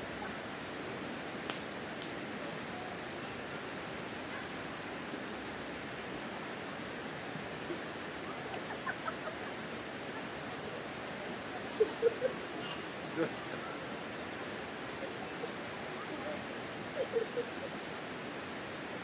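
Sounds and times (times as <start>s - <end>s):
campfire hissing: 0.0s - 19.0s
fire crackles: 1.4s - 2.2s.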